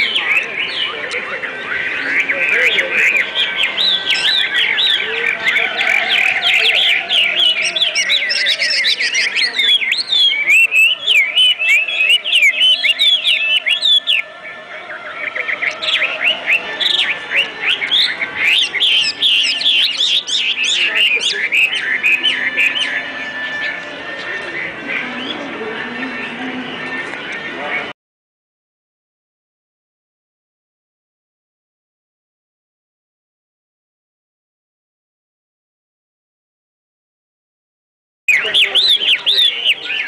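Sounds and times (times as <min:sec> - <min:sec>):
small birds chirping: 0:00.0 - 0:27.9, 0:38.3 - 0:40.0.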